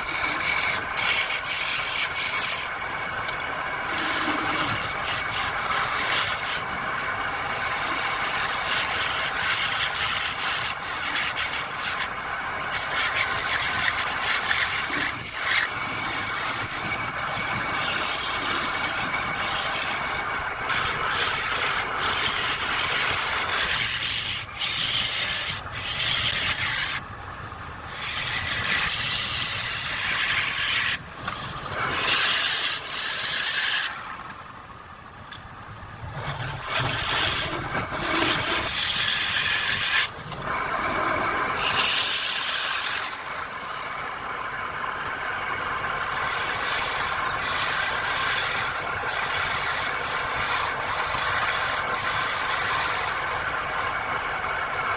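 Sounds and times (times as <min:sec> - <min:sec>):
lathe tool scraping spinning wood: 0:00.0 - 0:27.1, 0:27.9 - 0:34.7, 0:36.1 - 0:40.7, 0:41.4 - 0:44.6, 0:45.8 - 0:54.9.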